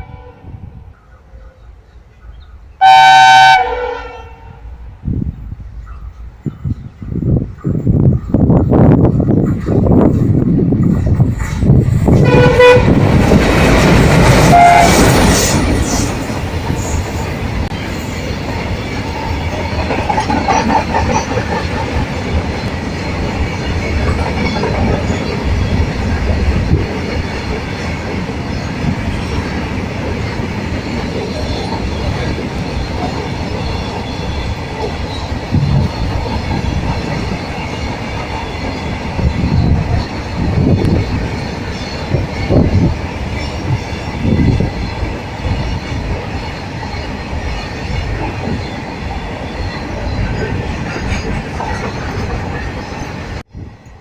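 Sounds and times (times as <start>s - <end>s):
train horn note: 0.0s - 0.7s, 2.8s - 4.8s, 12.2s - 13.1s, 14.4s - 15.4s
train passing at full speed: 0.0s - 54.0s
wheels clicking over rail joints: 18.4s - 43.8s, 44.4s - 53.1s.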